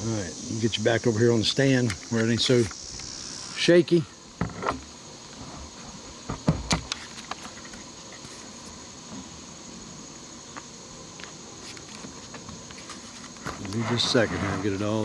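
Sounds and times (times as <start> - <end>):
insects chorus: 0.0 - 15.0
camera knocks on stand: 6.3 - 6.9.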